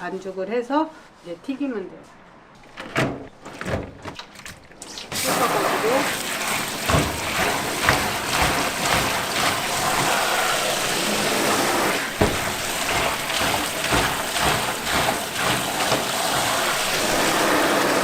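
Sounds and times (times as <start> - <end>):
water running and splashing: 4.2 - 18.0.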